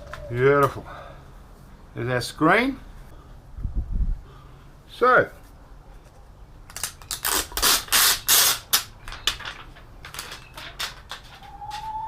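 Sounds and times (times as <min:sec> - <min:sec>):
plastic parts clicking and rattling: 0:06.7 - 0:11.6
chicken call: 0:11.4 - 0:12.0.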